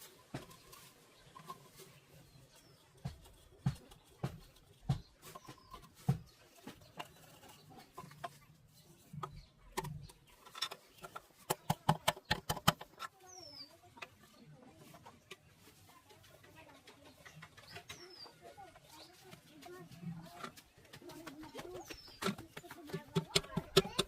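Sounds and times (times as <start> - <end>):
sharp clicks and knocks: 2.6 - 8.5, 9.1 - 13.2, 20.3 - 24.0.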